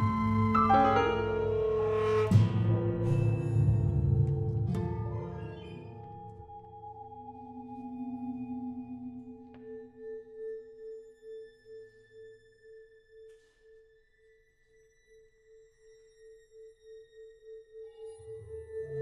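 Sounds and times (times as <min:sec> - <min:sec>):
sustained pulsing tone: 0:00.0 - 0:04.5.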